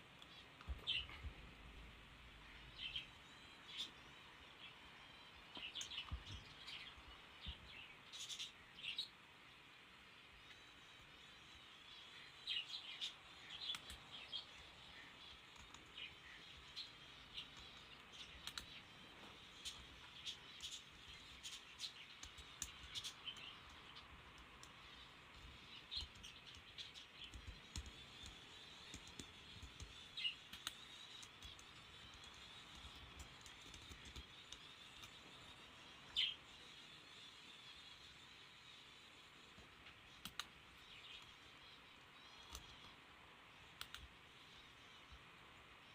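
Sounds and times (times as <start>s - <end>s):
light clicks: 43.8s - 44.1s.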